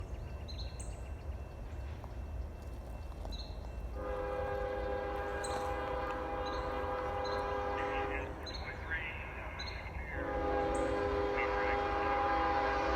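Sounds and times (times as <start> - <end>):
locomotive air horn blast: 4.0 - 8.4, 10.2 - 12.9.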